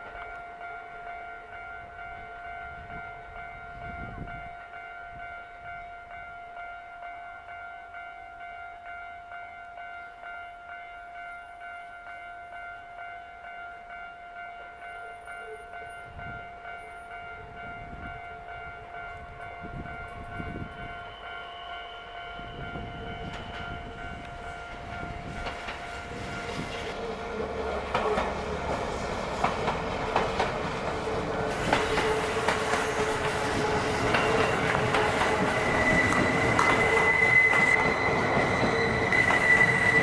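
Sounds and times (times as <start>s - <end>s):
crossing warning bell ringing: 0.0s - 40.0s
train wheels clattering over rail joints: 23.2s - 40.0s.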